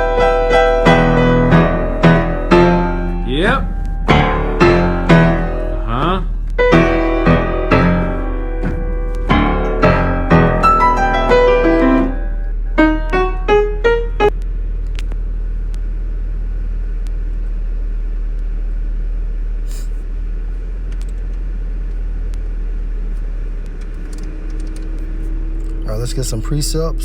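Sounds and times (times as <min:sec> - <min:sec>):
piano notes climbing in pitch: 0:00.0 - 0:14.4
steady low hum: 0:00.0 - 0:27.0.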